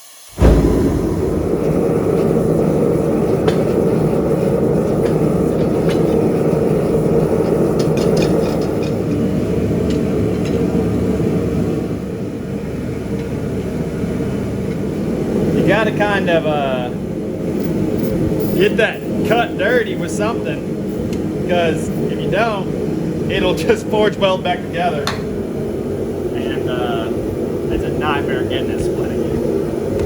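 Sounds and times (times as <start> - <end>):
shop machinery running: 0.4 - 11.9.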